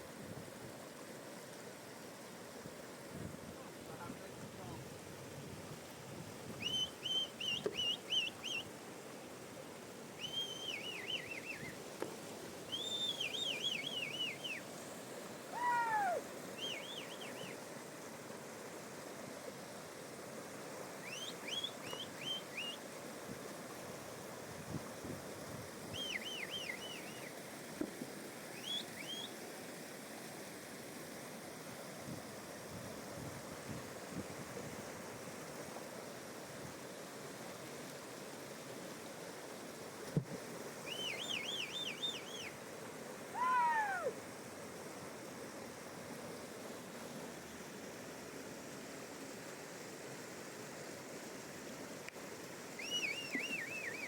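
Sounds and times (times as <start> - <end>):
lower falling bird call: 6.6 - 8.7, 10.2 - 11.8, 12.7 - 14.7, 15.5 - 17.6, 21.0 - 22.8, 25.9 - 27.3, 28.6 - 29.3, 40.8 - 42.6, 43.3 - 44.2, 52.8 - 54.0
songbird whistling phrases: 6.6 - 8.7, 10.2 - 11.8, 12.7 - 14.6, 15.6 - 17.6, 21.0 - 22.8, 26.0 - 27.3, 28.6 - 29.3, 40.9 - 42.6, 52.8 - 54.0.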